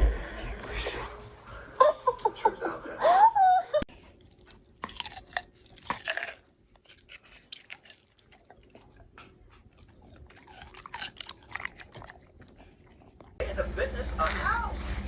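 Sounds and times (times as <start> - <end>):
chewing crisp crunches: 3.9 - 13.4.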